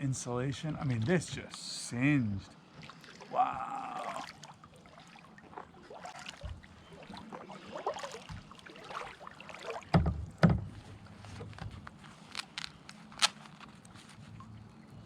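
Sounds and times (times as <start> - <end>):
kayak paddle splashing in water: 2.7 - 11.5
hollow thumps on kayak hull: 9.8 - 11.9.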